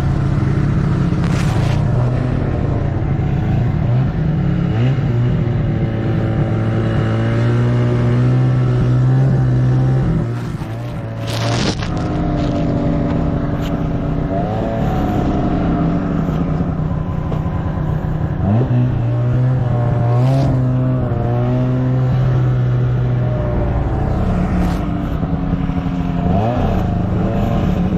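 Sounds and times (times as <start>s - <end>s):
snowmobile engine running: 0.0s - 27.9s.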